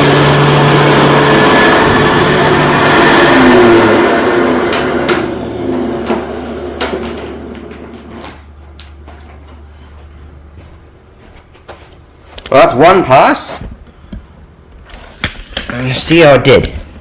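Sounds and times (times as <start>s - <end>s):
vacuum cleaner motor: 0.0s - 8.4s.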